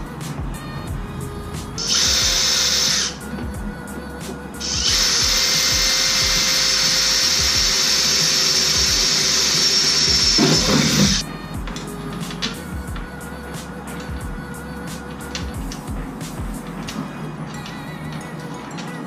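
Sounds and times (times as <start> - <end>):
power drill running: 1.8 - 3.2, 4.6 - 11.2.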